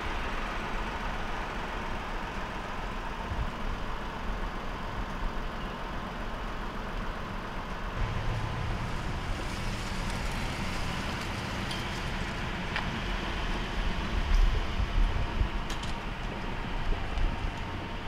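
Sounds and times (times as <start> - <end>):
car engine idling: 0.0 - 18.0
low bumps: 7.9 - 15.2.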